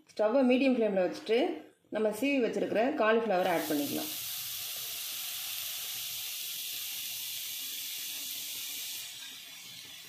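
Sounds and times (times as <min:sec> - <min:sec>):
vegetables sizzling in hot oil: 0:03.4 - 0:10.0.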